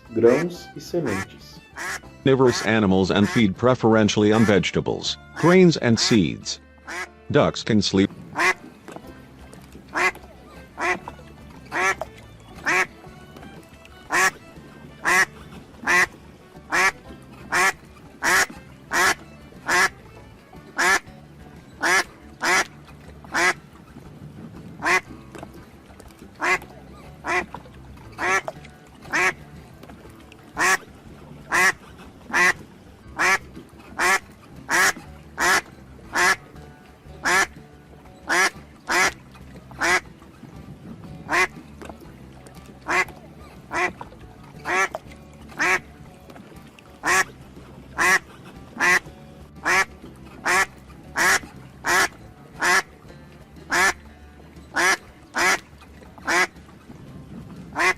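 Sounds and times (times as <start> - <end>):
soft background music: 0.0 - 57.9
duck quacking: 1.1 - 3.5, 4.3 - 4.6, 5.2 - 7.1, 8.4 - 8.6, 9.9 - 10.2, 10.8 - 11.0, 11.7 - 12.0, 12.6 - 12.9, 14.1 - 14.4, 15.0 - 16.1, 16.7 - 20.0, 20.8 - 21.1, 21.8 - 22.7, 23.3 - 23.6, 24.8 - 25.1, 26.4 - 26.6, 27.2 - 27.5, 28.2 - 28.5, 29.1 - 29.4, 30.6 - 30.8, 31.5 - 32.6, 33.2 - 33.4, 34.0 - 36.4, 37.2 - 37.5, 38.3 - 39.2, 39.8 - 40.0, 41.3 - 41.5, 42.8 - 43.1, 43.7 - 44.0, 44.7 - 45.0, 45.6 - 45.8, 47.0 - 47.3, 48.0 - 49.0, 49.6 - 52.9, 53.7 - 54.0, 54.8 - 55.6, 56.2 - 56.5.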